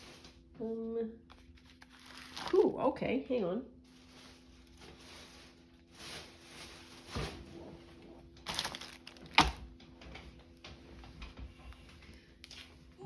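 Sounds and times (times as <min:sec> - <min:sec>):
scraping rustle: 0:03.9 - 0:09.3.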